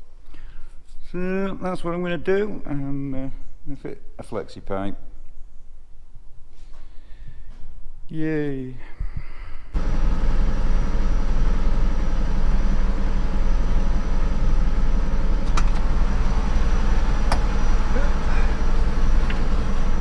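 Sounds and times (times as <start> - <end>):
engine idling through worn exhaust: 9.8 - 20.0.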